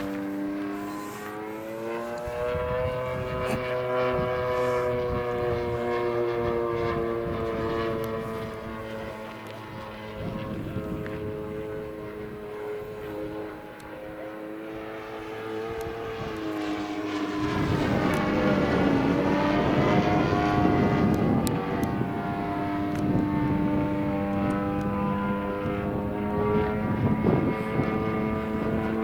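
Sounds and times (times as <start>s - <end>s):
model airplane propeller drone: 0.0s - 29.0s.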